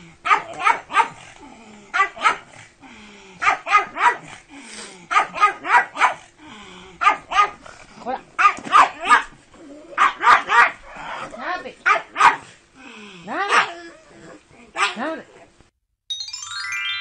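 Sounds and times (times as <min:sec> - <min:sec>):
dog barking: 0:00.2 - 0:01.2, 0:01.9 - 0:02.5, 0:03.4 - 0:04.3, 0:05.1 - 0:06.3, 0:07.0 - 0:07.6, 0:08.4 - 0:09.3, 0:10.0 - 0:10.8, 0:11.8 - 0:12.5, 0:13.4 - 0:13.8, 0:14.7 - 0:15.2.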